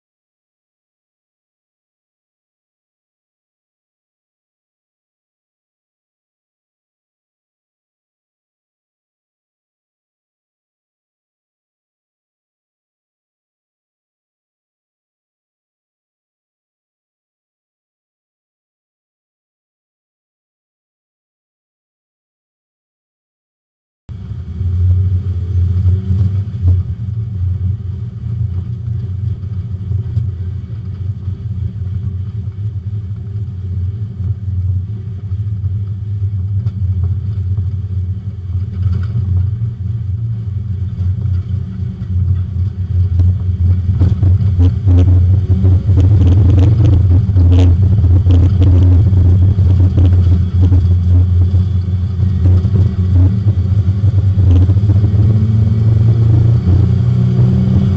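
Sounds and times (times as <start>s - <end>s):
race car engine from inside: 24.1s - 57.9s.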